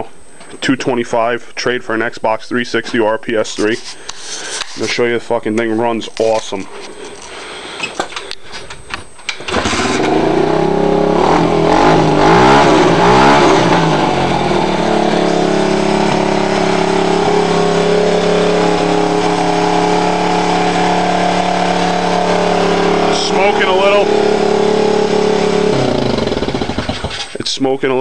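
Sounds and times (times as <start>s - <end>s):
dirt bike engine revving and idling: 9.4s - 27.4s.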